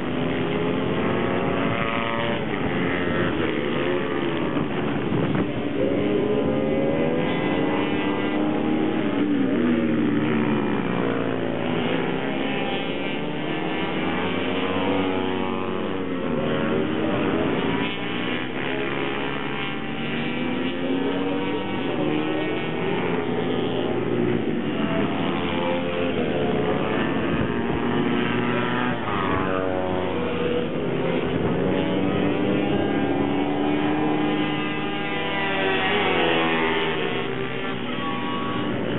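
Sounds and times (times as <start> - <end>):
minibike engines revving: 0.0 - 38.9.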